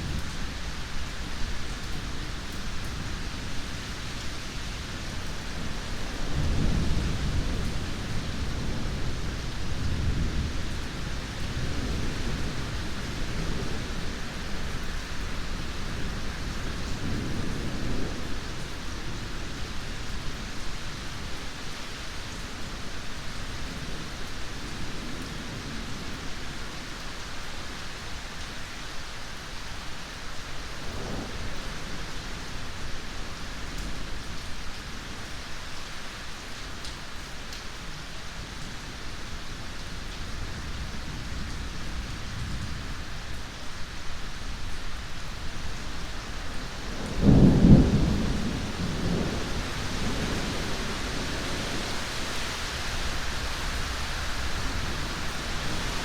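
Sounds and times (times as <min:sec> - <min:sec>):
heavy rain: 0:00.0 - 0:56.0
thunder rumbling: 0:46.6 - 0:56.0.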